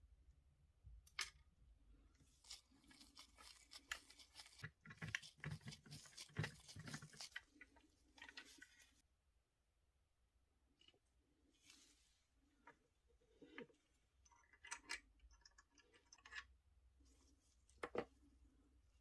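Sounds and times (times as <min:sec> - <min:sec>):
small objects handled by hand: 0:00.9 - 0:09.0.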